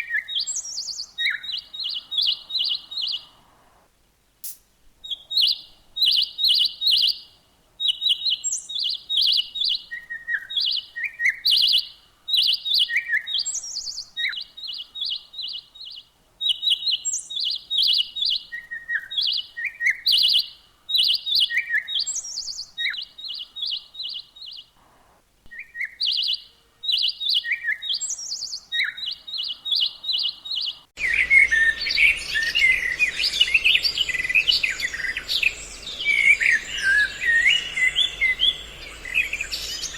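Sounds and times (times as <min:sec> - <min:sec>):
dense bird twittering: 0:00.0 - 0:03.9, 0:05.0 - 0:39.9
background hiss: 0:00.0 - 0:39.9
bird chattering calls: 0:30.6 - 0:39.9.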